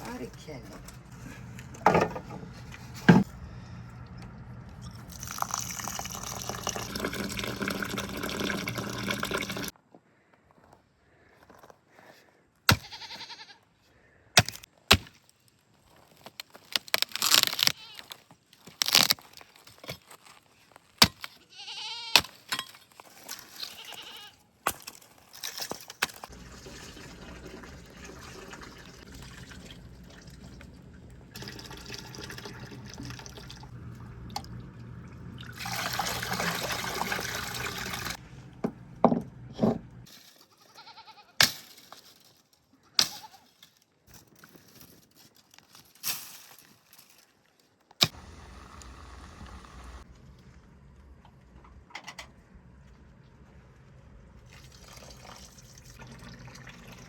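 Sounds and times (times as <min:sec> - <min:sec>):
low steady hum: 0:00.0 - 0:09.0, 0:26.3 - 0:40.1, 0:48.2 - 0:57.0
handling knocks and clicks: 0:00.6 - 0:03.3
liquid pouring and splashing: 0:04.8 - 0:09.7, 0:25.4 - 0:38.2, 0:54.4 - 0:57.0.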